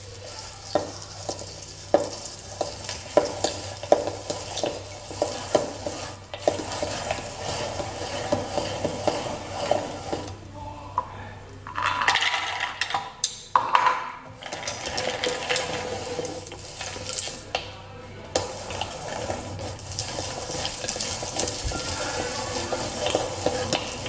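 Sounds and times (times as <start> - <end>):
steady hiss: 0.0 - 10.5, 18.4 - 24.0
dishes and utensils knocking: 13.6 - 15.8.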